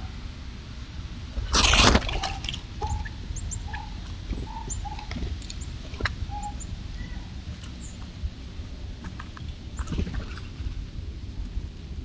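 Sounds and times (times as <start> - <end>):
low bird notes: 2.2 - 8.0
high bird chirps: 2.8 - 5.2, 6.3 - 7.2.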